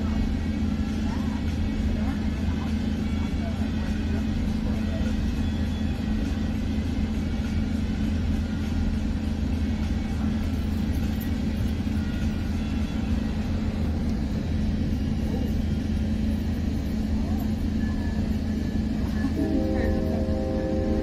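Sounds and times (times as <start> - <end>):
train wheels rumbling on rails: 0.0 - 21.0
low hum: 3.9 - 21.0.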